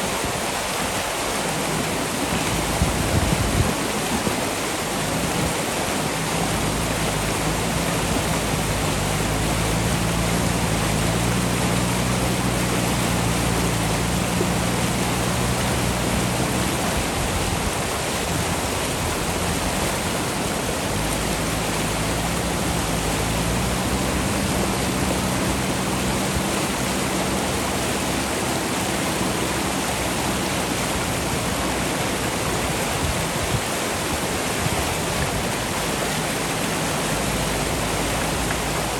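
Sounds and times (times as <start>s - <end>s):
river rushing: 0.0s - 38.9s
diesel engine running: 0.1s - 38.9s.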